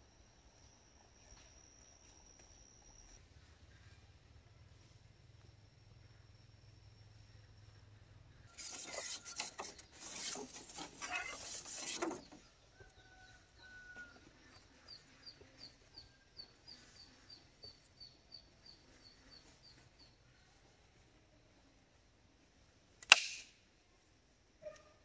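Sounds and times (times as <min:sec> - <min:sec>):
small bird chirping: 0:00.0 - 0:20.6
loud rustling and scraping: 0:08.5 - 0:12.5.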